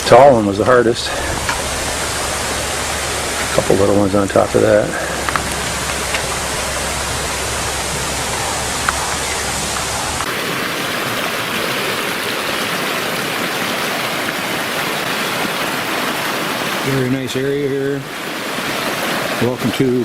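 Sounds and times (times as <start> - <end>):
low rumble: 0.0 - 10.3
stream water rushing: 0.0 - 20.0.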